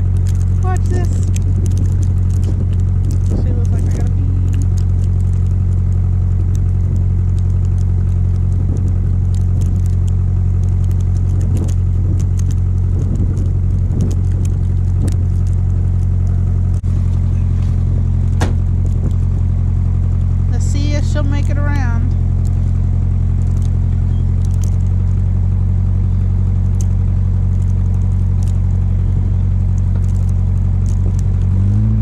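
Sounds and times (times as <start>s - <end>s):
light crackles: 0.0s - 32.0s
vehicle engine idling: 0.0s - 32.0s.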